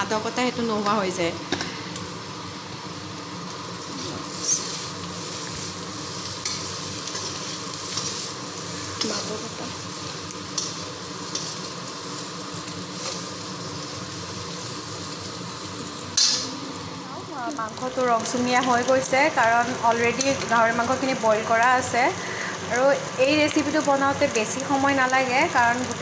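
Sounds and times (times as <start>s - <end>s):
meat sizzling in oil: 0.0s - 26.0s
spoon scraping a pan: 6.4s - 9.2s.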